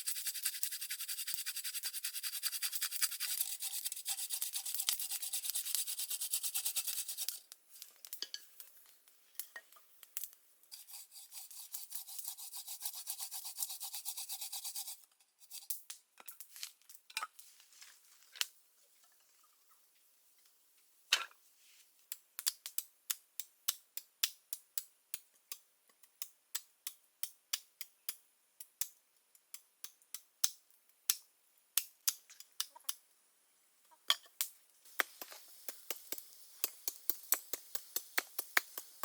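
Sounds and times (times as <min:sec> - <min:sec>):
faint hiss: 0:00.0 - 0:15.7, 0:33.0 - 0:39.0.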